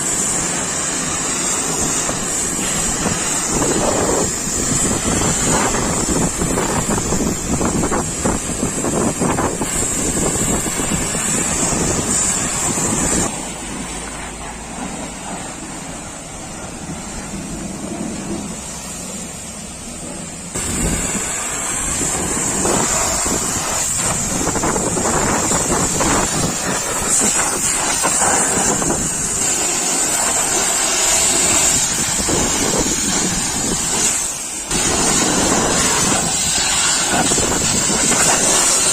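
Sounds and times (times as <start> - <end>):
pressure washer water jet spraying: 0.0 - 38.9.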